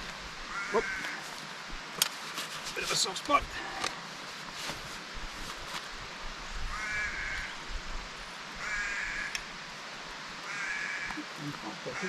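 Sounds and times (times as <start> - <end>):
steady background hiss: 0.0 - 12.0
crow cawing: 0.5 - 1.3, 6.7 - 7.6, 8.6 - 9.4, 10.4 - 11.3.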